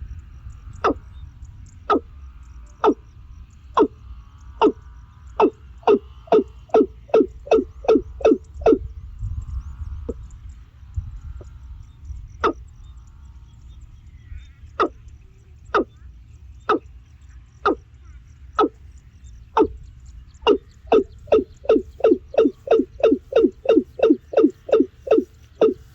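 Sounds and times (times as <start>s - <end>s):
animal calling sharp notes: 1.8s - 2.1s, 2.7s - 3.1s, 3.7s - 4.0s, 4.6s - 9.0s, 12.4s - 12.7s, 14.2s - 16.0s, 16.6s - 16.9s, 17.6s - 17.8s, 18.5s - 25.9s.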